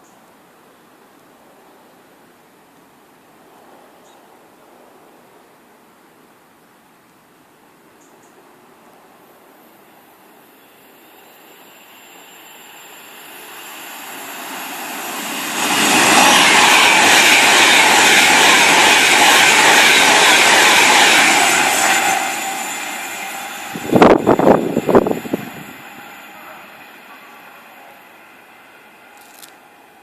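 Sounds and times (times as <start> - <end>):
train passing at speed: 8.9 - 30.0.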